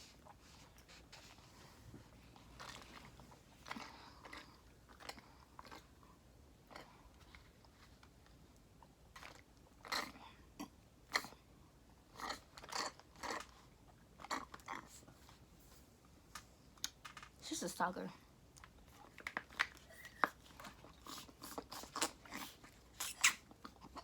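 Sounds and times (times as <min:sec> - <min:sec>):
person chewing crunchy food: 0:00.1 - 0:15.4, 0:18.6 - 0:24.0.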